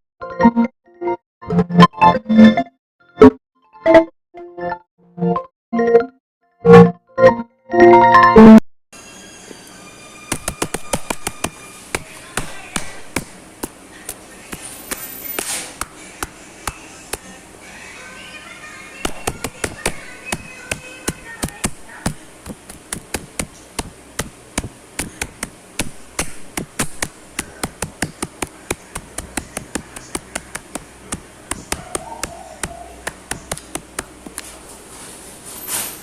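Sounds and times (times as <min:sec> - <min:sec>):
rapid clicking taps: 0:10.3 - 0:17.2, 0:19.0 - 0:34.4.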